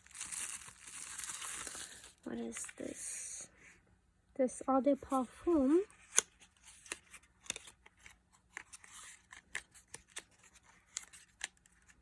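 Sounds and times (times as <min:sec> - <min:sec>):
packaging rustling: 0:00.0 - 0:02.8.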